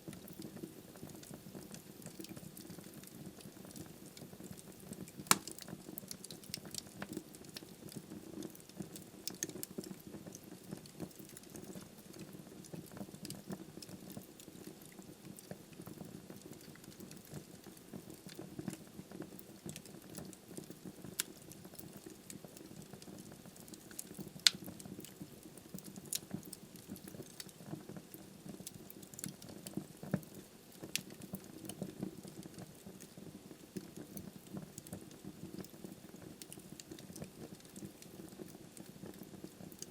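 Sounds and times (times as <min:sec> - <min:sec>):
fire crackling: 0:00.0 - 0:39.9
wood fire burning: 0:00.0 - 0:39.9
sharp pops of burning wood: 0:04.6 - 0:07.7.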